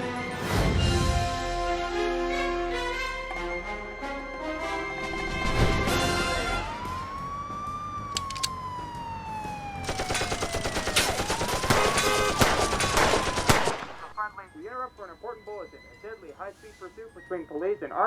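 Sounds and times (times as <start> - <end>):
police car siren wailing: 4.0 - 18.0
rapid gunfire: 9.8 - 14.2.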